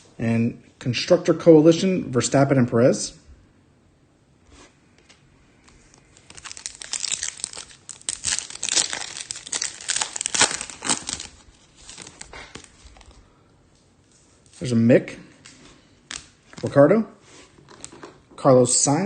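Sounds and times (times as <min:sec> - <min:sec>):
foil wrapper tearing and crinkling: 0:06.0 - 0:13.2.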